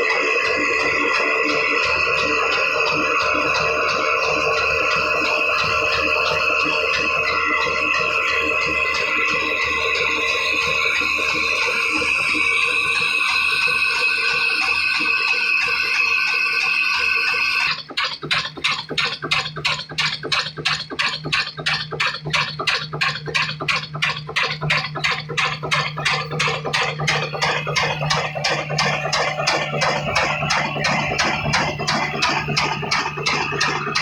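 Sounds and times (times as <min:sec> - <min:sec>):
music: 0:00.0 - 0:17.4
diesel engine chugging: 0:00.0 - 0:34.0.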